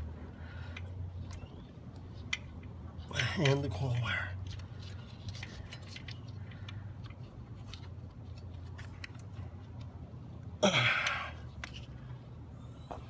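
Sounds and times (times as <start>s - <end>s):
steady low hum: 0.0s - 13.0s
small clicks and handling sounds: 0.6s - 10.4s, 11.0s - 12.2s.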